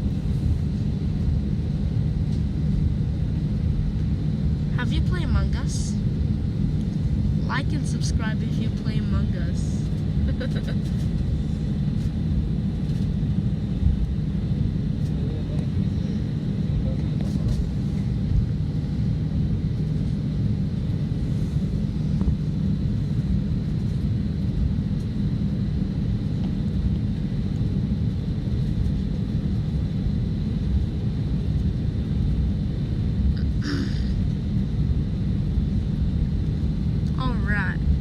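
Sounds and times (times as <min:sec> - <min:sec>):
jet engine cabin rumble: 0:00.0 - 0:38.0.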